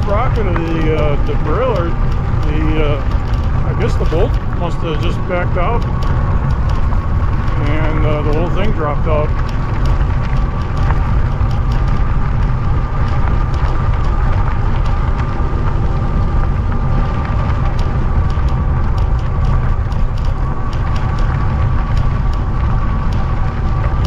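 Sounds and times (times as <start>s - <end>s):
tyre and road noise: 0.0s - 24.0s
wind on microphone: 0.0s - 24.0s.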